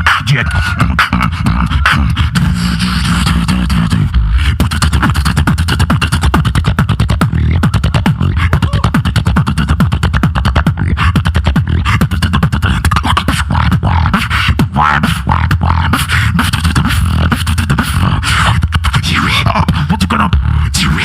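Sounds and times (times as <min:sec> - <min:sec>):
beatboxing: 0:00.0 - 0:21.0
heavy bass: 0:00.0 - 0:21.0.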